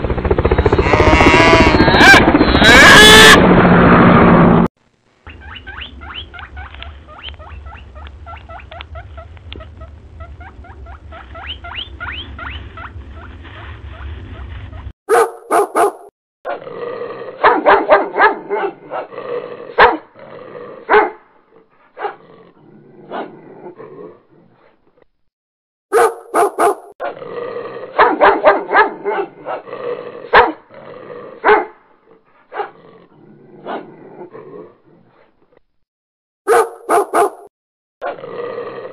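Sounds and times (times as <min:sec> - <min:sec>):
puppy yipping and barking: 0:05.3 - 0:13.3, 0:13.9 - 0:16.1, 0:25.9 - 0:26.9, 0:36.5 - 0:37.5.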